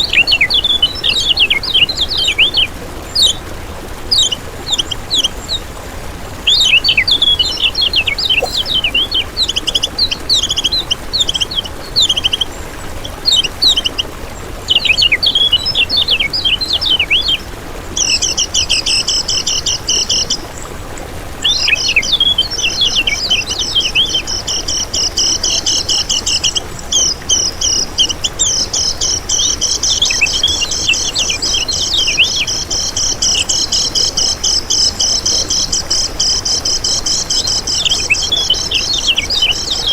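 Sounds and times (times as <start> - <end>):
songbird singing chattering song: 6.4 - 14.1.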